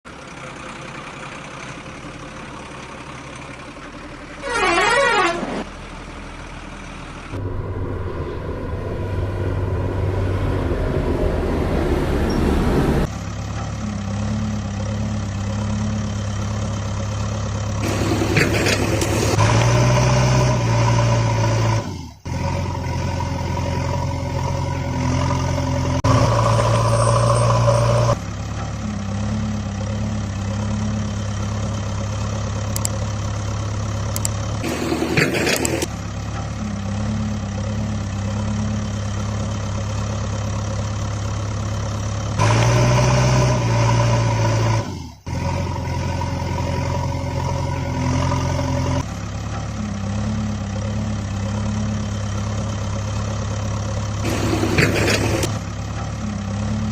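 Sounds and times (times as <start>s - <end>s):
engine idling: 0.1s - 19.8s, 21.5s - 43.4s, 44.4s - 56.9s.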